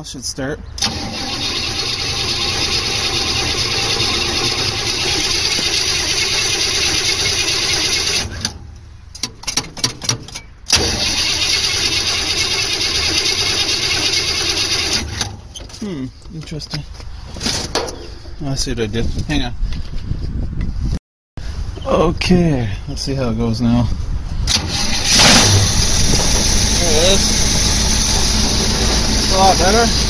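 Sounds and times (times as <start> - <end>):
car engine cranking on starter: 0.8 - 8.6, 10.7 - 15.4, 24.5 - 30.0.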